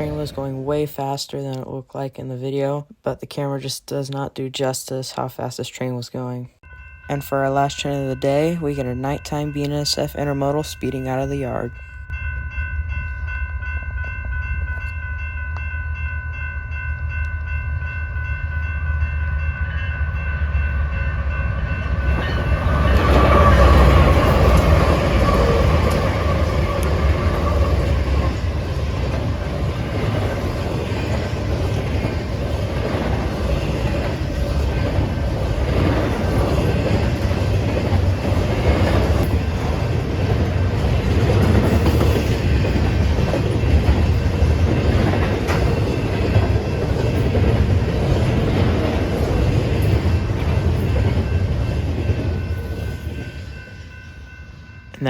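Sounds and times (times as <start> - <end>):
locomotives rushing past: 21.1 - 53.4
train wheels clattering on rails: 21.3 - 54.0.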